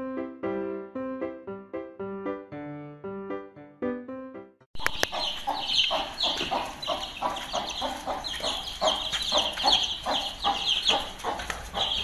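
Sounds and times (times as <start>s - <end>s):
chicks peeping: 4.8s - 12.0s
hen clucking: 4.8s - 12.0s.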